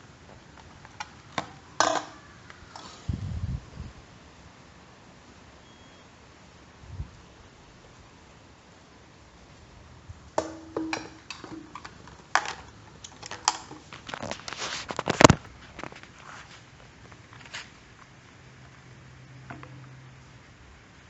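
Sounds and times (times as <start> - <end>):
hard objects knocking and clattering: 10.4 - 14.4.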